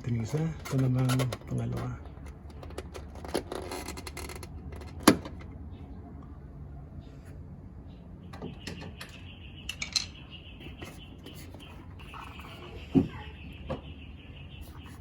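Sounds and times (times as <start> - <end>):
plastic clicks and scraping: 0.3 - 5.5.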